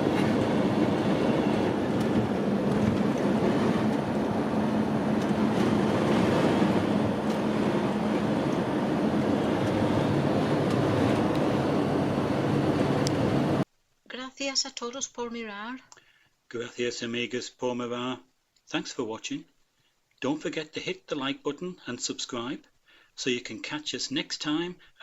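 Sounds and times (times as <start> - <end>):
campervan road and engine noise: 0.0 - 13.7.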